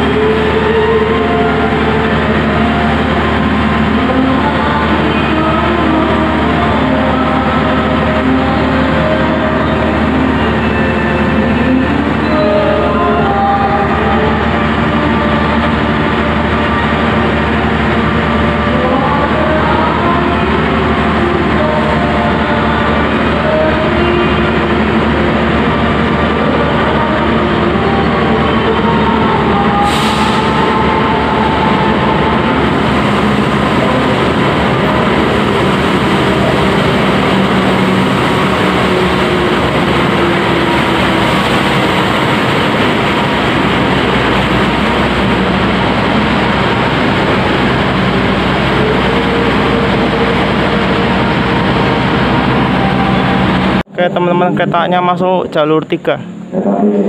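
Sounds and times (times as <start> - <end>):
diesel locomotive running: 0.0 - 57.0.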